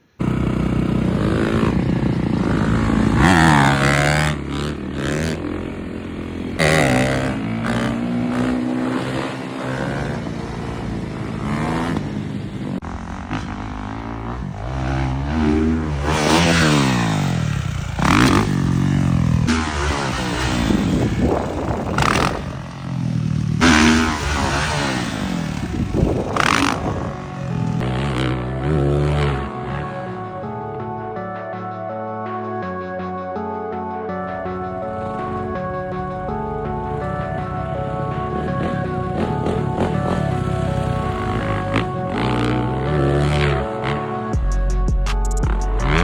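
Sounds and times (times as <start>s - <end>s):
dirt bike engines revving: 0.0s - 31.0s, 34.5s - 44.3s, 45.7s - 46.0s.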